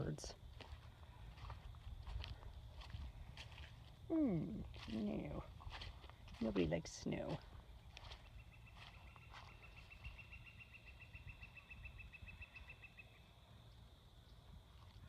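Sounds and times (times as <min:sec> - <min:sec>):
low rumble of wind: 0:00.0 - 0:15.0
songbird trill: 0:03.6 - 0:15.0.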